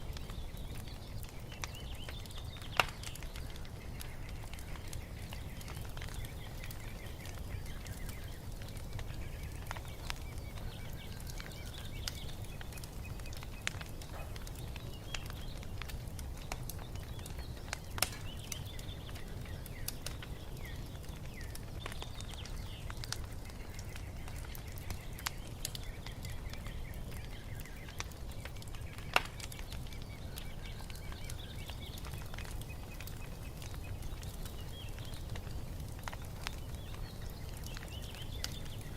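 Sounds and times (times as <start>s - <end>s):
small birds chirping: 0.0s - 38.9s
wood fire crackling and popping: 0.0s - 38.9s.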